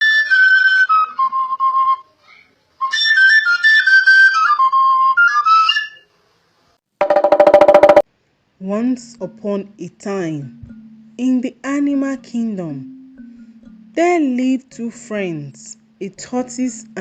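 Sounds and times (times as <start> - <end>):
flute-like melody: 0.0 - 2.2, 2.8 - 6.1.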